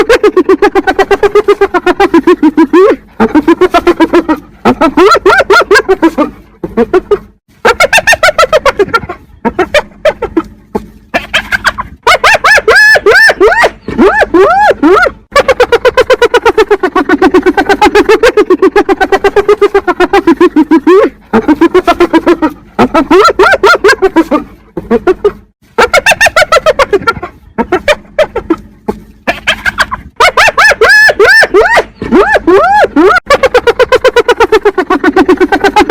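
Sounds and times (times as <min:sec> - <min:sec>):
hyena giggling: 0:00.0 - 0:35.9.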